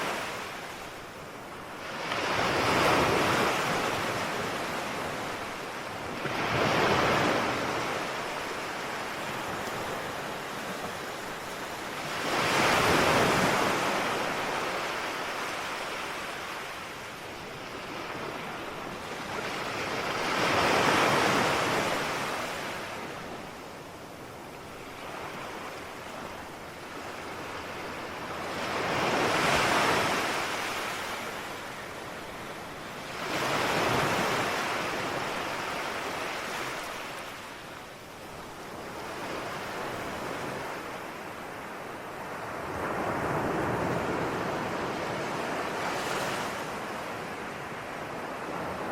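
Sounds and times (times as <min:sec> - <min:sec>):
ocean waves breaking: 0:00.0 - 0:23.4.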